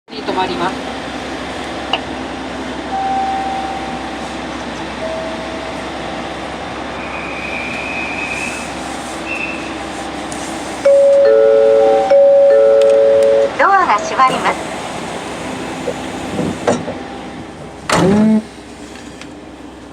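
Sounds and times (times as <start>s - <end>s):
train equipment hum: 0.1s - 19.9s
two-tone electronic chime: 3.0s - 4.1s, 10.9s - 13.5s.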